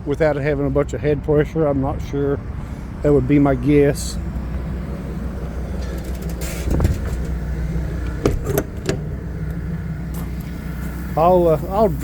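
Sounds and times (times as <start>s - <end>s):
engine idling: 3.7s - 12.0s.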